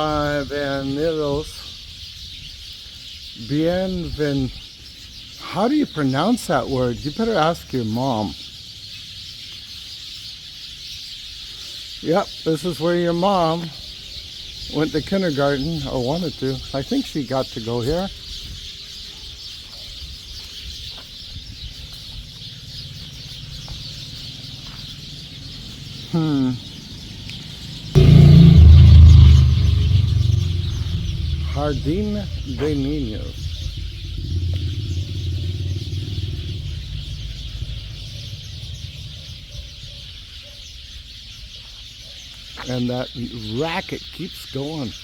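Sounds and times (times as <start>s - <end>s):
flock of small birds chattering: 0.0s - 45.0s
traffic engine rumble: 21.7s - 40.4s.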